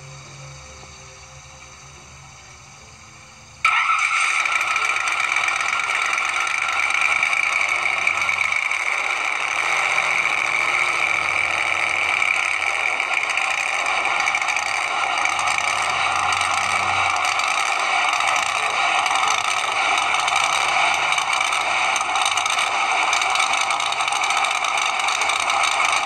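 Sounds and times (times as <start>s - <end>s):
tinny drag car engine: 0.0s - 26.0s.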